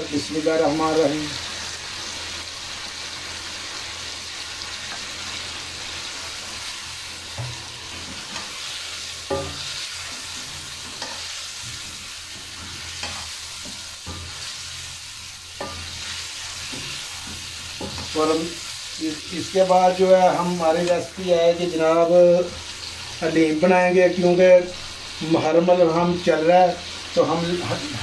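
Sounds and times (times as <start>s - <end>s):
chicken sizzling in a pan: 0.0s - 28.0s
spatula stirring: 7.3s - 18.2s.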